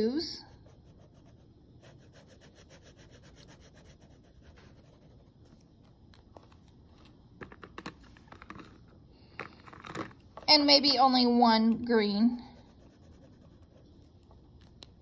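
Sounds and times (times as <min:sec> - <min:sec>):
marker scribbling on paper: 0:00.3 - 0:05.4, 0:12.5 - 0:14.1.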